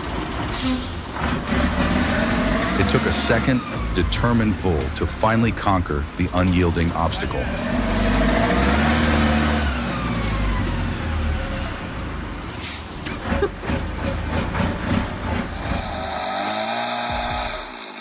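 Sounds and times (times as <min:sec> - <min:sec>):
diesel truck engine under load: 0:00.0 - 0:18.0
air brake hisses: 0:12.6 - 0:13.1.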